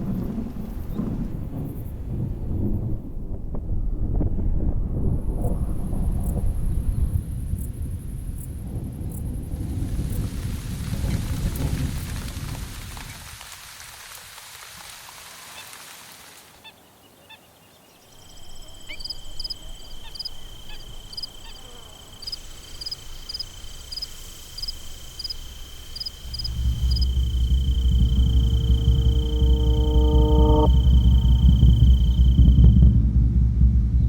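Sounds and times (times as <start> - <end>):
rain: 0.0 - 3.6, 5.0 - 16.9, 18.1 - 33.9
low rumble: 25.0 - 34.0
high-pitched whine: 25.9 - 34.0
loud low sound: 26.2 - 34.0.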